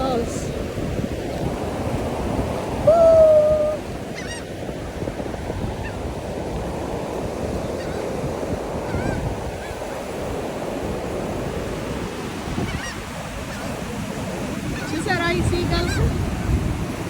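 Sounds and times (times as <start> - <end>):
surf rushing: 0.0 - 17.0
wind on microphone: 0.0 - 17.0
gulls calling: 2.7 - 4.6, 7.6 - 8.2, 12.6 - 16.5.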